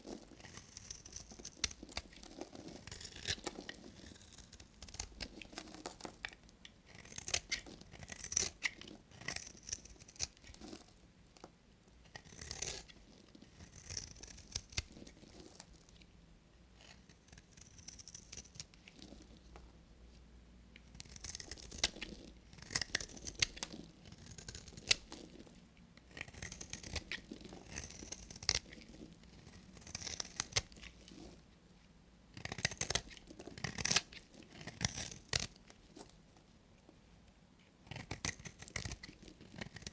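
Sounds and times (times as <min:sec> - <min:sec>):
knife cutting through soap: 0:00.4 - 0:06.3, 0:06.9 - 0:10.8, 0:12.1 - 0:15.4, 0:20.9 - 0:25.3, 0:26.0 - 0:31.1, 0:32.4 - 0:35.6, 0:37.8 - 0:39.9.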